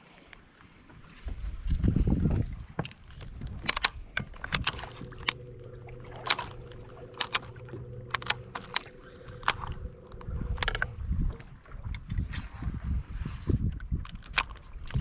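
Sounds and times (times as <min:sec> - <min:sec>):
boat motor hum: 0:03.1 - 0:12.0
sharp clicks and knocks: 0:03.6 - 0:10.9.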